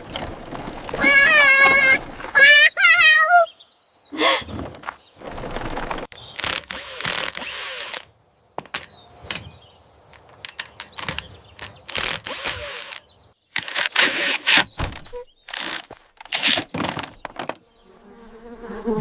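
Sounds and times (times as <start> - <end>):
tool noise bursts: 6.4 - 8.1, 11.9 - 13.0, 13.6 - 16.7.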